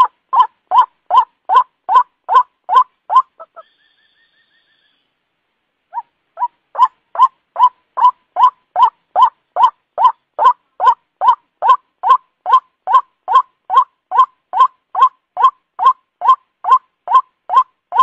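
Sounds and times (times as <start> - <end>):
faint thin trill: 3.6 - 5.2
waterhen kwak calls: 5.9 - 18.0.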